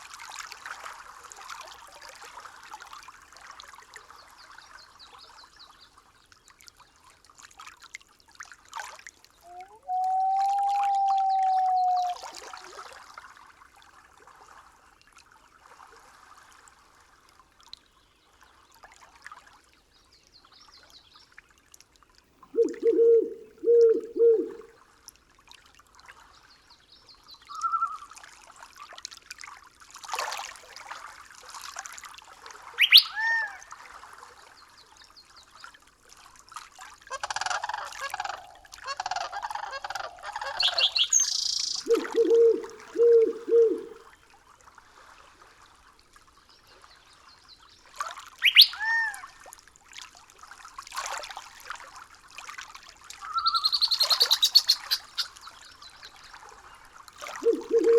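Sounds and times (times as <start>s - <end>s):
faint running water: 0.0s - 57.9s
birds whistling and chattering: 9.5s - 12.2s, 32.8s - 33.4s, 38.1s - 44.0s, 48.4s - 49.0s, 53.4s - 55.4s, 57.4s - 57.9s
low bird call: 9.5s - 12.7s, 22.6s - 24.7s, 32.8s - 33.6s, 37.1s - 44.0s, 48.4s - 49.2s, 53.2s - 55.4s, 57.4s - 57.9s.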